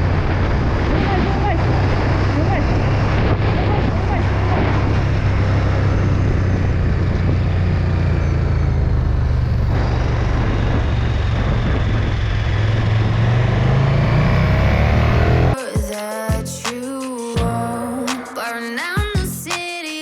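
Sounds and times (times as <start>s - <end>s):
motorcycle engine running: 0.0s - 13.6s
wind rush on microphone: 0.0s - 13.9s.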